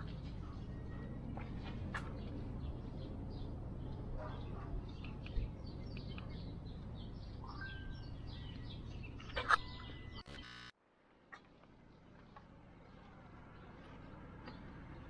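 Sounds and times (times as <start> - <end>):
birds chirping and twittering: 0.0 - 10.7.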